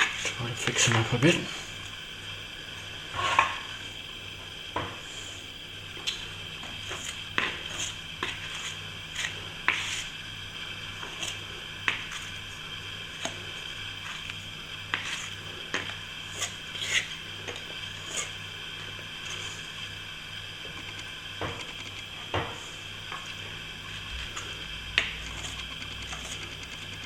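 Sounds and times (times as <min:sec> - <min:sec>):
trowel scraping plaster: 0:06.8 - 0:10.1, 0:14.9 - 0:15.3, 0:16.3 - 0:17.2.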